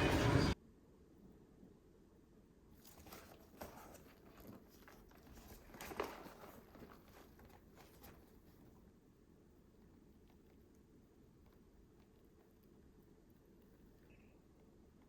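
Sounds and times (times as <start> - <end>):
handling taps and rustles: 2.8 - 8.8.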